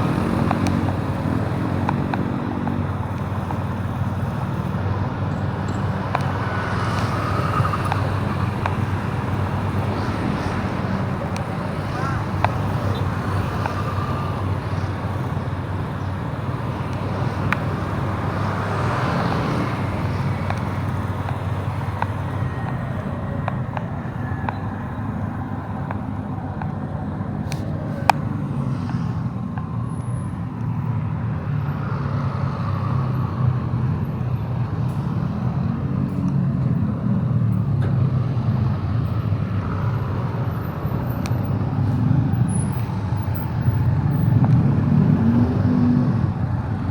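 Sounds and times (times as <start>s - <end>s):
motorbike engine: 0.0s - 26.6s
traffic noise: 0.0s - 46.9s.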